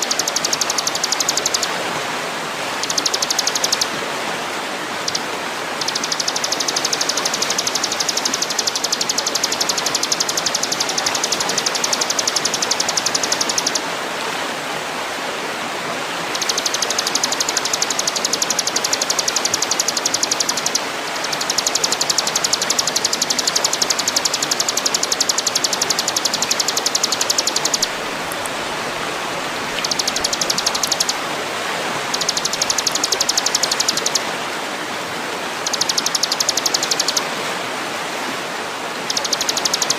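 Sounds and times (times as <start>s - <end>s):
rapid high bird trill: 0.0s - 1.7s, 2.8s - 4.0s, 5.0s - 13.8s, 16.3s - 28.0s, 29.8s - 31.2s, 32.1s - 34.3s, 35.6s - 37.2s, 39.0s - 39.9s
running water rushing: 0.0s - 39.9s.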